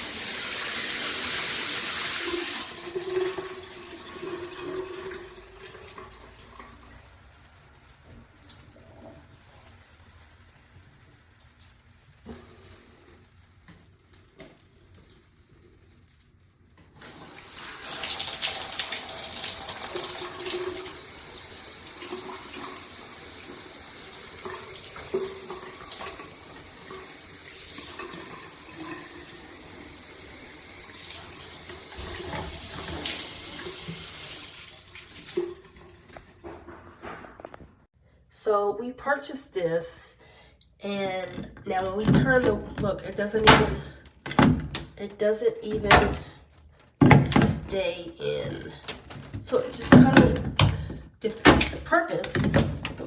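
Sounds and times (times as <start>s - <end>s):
shower water spraying: 0.0s - 36.4s
water drips: 2.2s - 36.4s.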